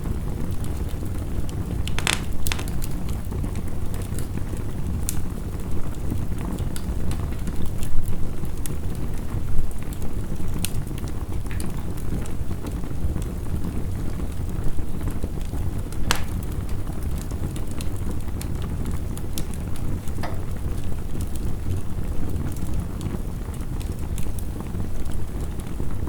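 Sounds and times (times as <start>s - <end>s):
wood fire crackling: 0.0s - 26.0s
sharp pops of fire: 0.5s - 5.6s, 9.8s - 13.3s, 15.1s - 21.8s.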